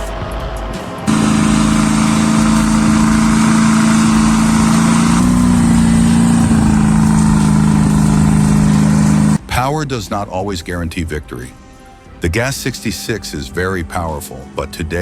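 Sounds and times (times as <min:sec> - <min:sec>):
truck engines revving high: 0:00.5 - 0:09.4.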